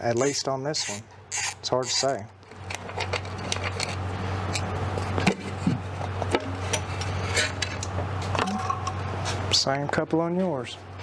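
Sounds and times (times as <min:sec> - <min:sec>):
steady low hum: 0:00.0 - 0:11.0
metal engine parts clinking: 0:00.2 - 0:04.6.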